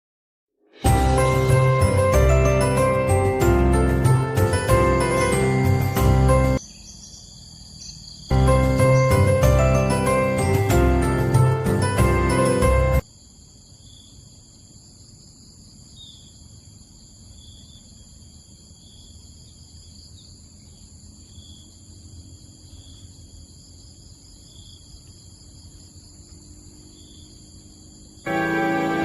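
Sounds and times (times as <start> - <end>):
insects trilling: 6.6 - 9.1, 13.0 - 28.4.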